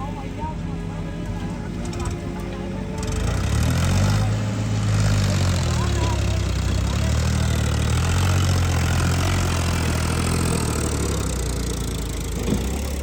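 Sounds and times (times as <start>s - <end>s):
vehicle engine idling low hum: 0.0s - 13.0s.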